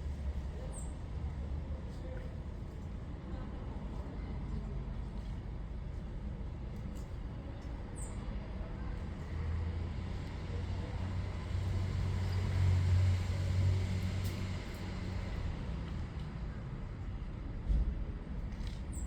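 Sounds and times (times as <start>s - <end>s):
passing vehicle engine rumble: 9.5s - 18.5s.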